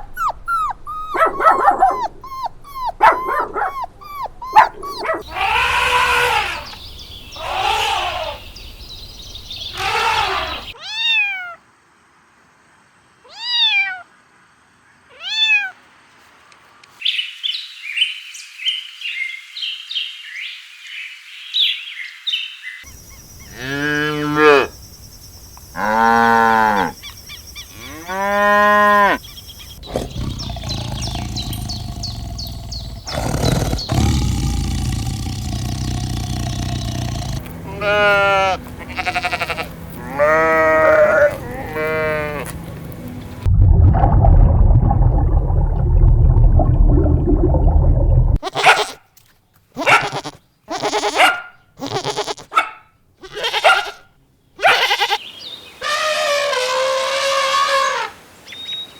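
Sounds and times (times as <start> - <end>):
long arching animal cries: 0.0 - 8.6, 9.6 - 11.6, 29.8 - 42.5, 49.8 - 52.6, 53.2 - 55.2, 55.8 - 58.2
high twittering: 29.6 - 37.5.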